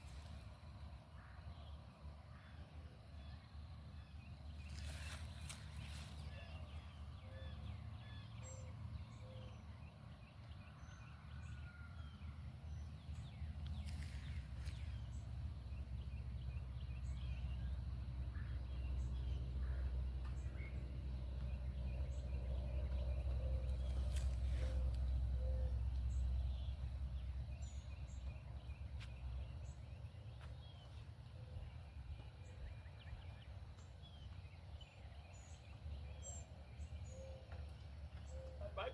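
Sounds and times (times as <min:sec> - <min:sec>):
steady low rumble: 0:12.7 - 0:36.1
birds calling: 0:13.2 - 0:38.9.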